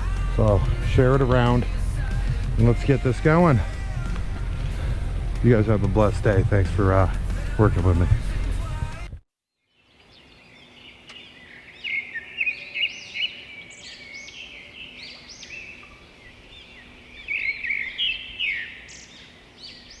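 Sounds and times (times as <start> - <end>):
songbirds singing: 0.0 - 8.7, 9.5 - 20.0.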